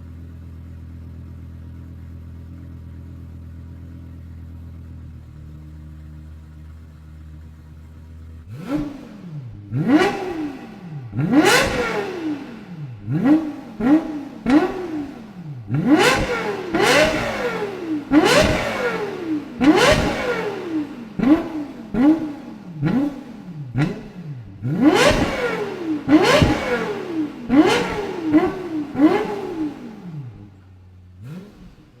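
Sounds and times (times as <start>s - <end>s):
car engine revving: 5.1s - 32.0s.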